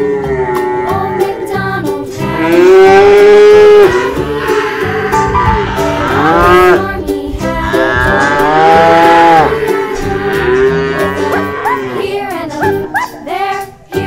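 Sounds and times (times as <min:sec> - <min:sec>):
background music: 0:00.0 - 0:14.0
cattle mooing: 0:02.2 - 0:12.3.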